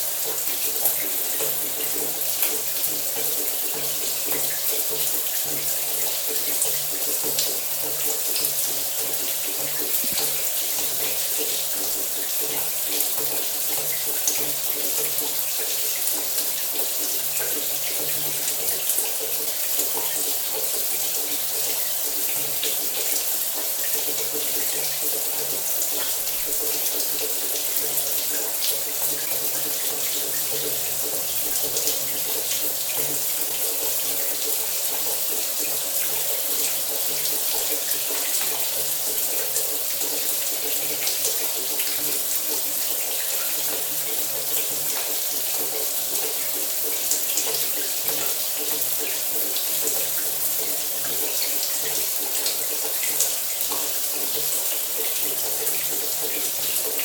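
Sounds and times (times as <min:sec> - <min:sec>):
shower water running: 0:00.0 - 0:57.0.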